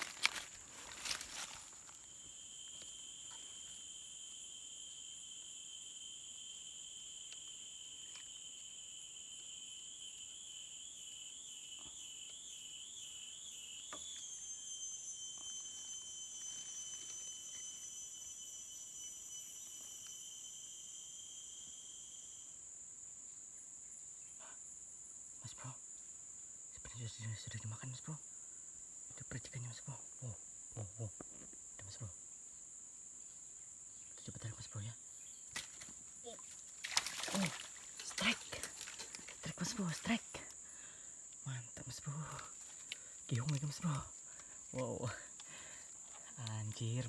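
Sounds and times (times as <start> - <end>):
insects buzzing high-pitched: 0.0 - 47.0
insect warbling whistle: 9.8 - 22.6.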